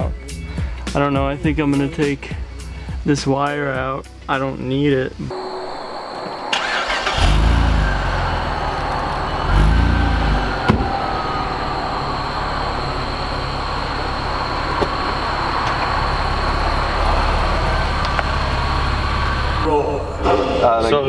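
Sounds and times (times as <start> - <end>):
engine revving: 5.3 - 20.8
car engine starting and idling: 5.3 - 21.0.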